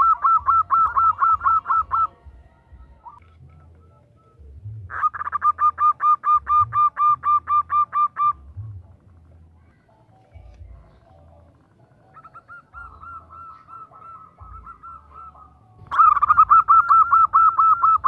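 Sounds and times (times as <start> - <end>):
dove cooing: 0.0 - 9.0, 9.9 - 18.0.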